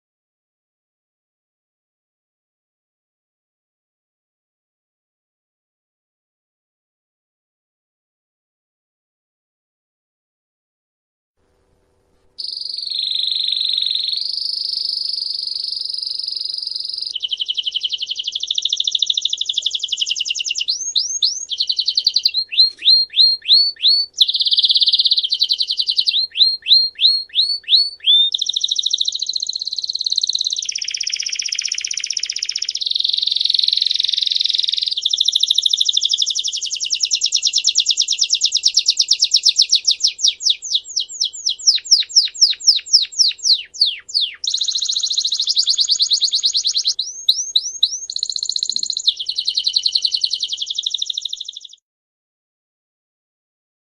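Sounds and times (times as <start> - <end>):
songbird singing trills: 12.4 - 51.8.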